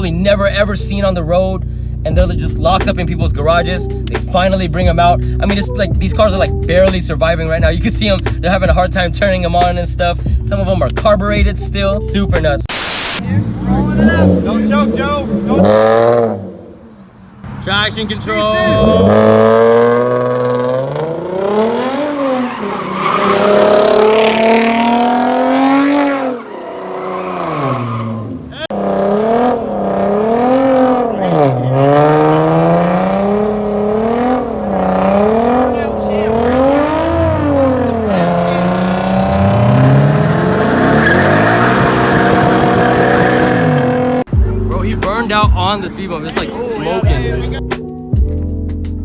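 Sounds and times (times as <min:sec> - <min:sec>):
car engine revving hard: 0:12.7 - 0:17.6, 0:18.5 - 0:44.3
tyres squealing: 0:21.8 - 0:28.7, 0:34.8 - 0:44.3.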